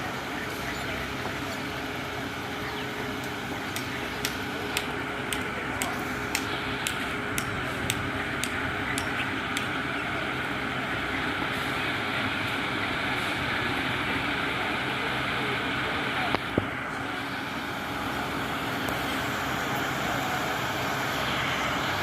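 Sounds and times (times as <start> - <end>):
diesel engine running: 0.0 - 22.0
sharp regular clicks: 3.2 - 9.8.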